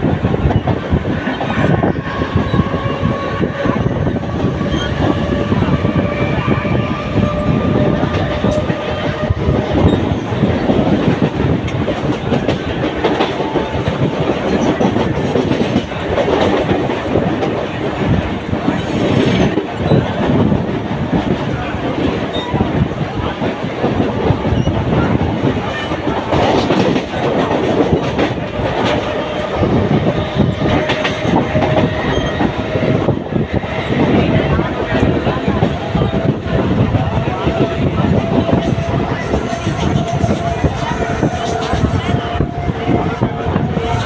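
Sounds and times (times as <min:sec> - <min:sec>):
train rumbling: 0:00.0 - 0:44.0.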